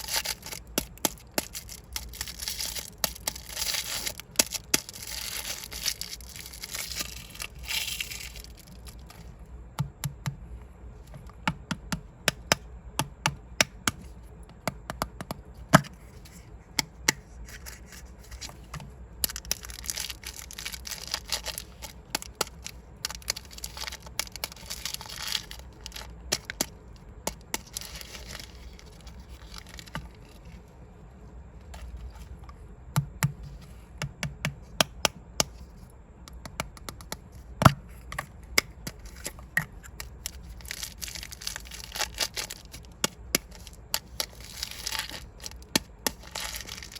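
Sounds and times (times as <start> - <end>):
plastic capsules clicking: 0.0 - 9.3, 18.4 - 30.4, 36.3 - 46.9
wrapper crinkling: 0.0 - 9.4, 17.6 - 30.7, 38.9 - 46.9.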